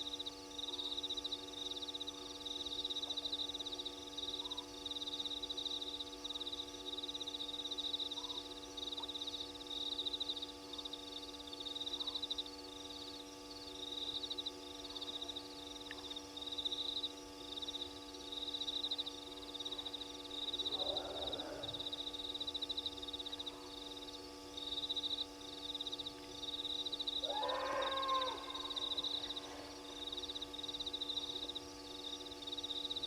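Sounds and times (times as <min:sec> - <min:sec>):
crickets trilling: 0:00.0 - 0:33.0
electrical hum: 0:00.0 - 0:33.0.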